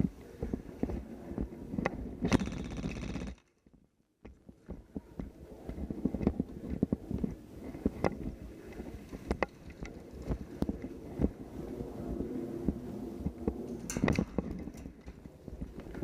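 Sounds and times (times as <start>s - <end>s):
sharp crackling burst: 2.3s - 3.4s.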